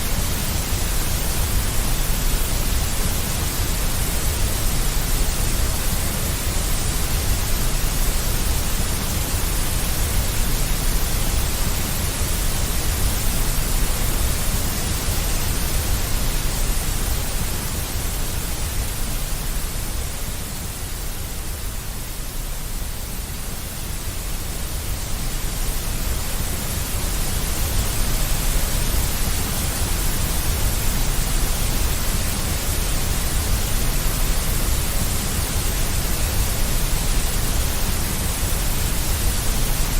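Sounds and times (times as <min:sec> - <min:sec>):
deep white noise hiss: 0:00.0 - 0:39.9.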